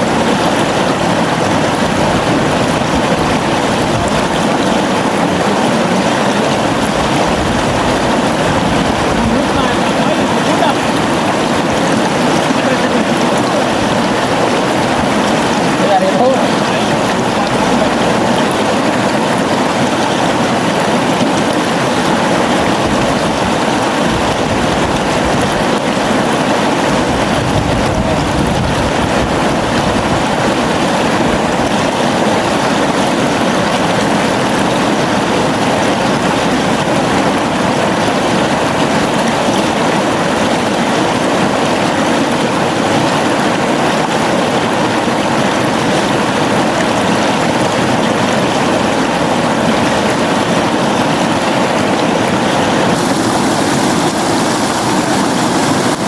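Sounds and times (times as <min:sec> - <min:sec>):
river flowing: 0:00.0 - 0:56.0.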